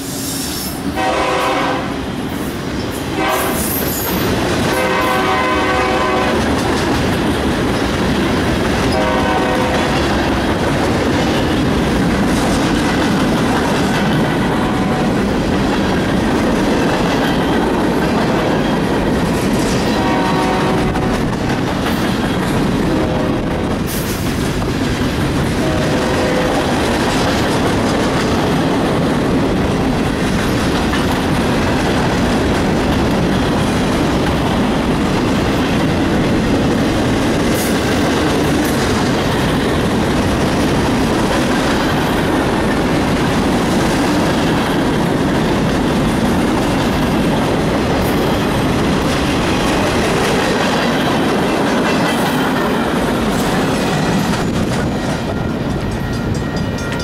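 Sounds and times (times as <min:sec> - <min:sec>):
wheels rumbling on rail: 0:00.0 - 0:57.0
high ringing tones: 0:55.0 - 0:57.0.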